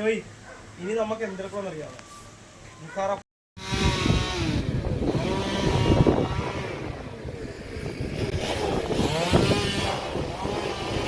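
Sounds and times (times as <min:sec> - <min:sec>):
wind buffeting microphone: 0:03.6 - 0:11.0.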